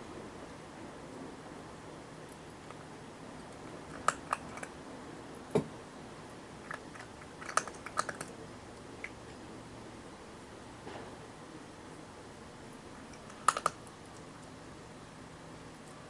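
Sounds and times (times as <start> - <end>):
sharp clicks and taps: 13.2 - 14.5.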